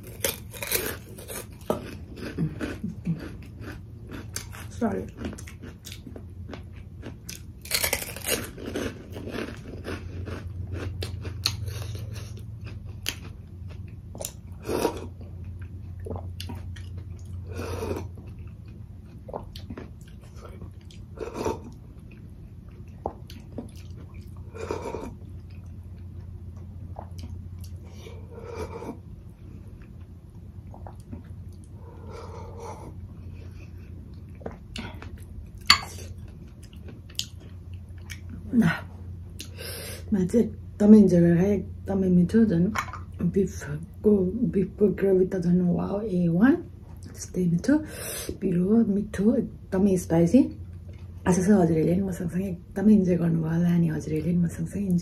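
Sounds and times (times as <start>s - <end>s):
chewing and crunching: 0.0s - 38.5s.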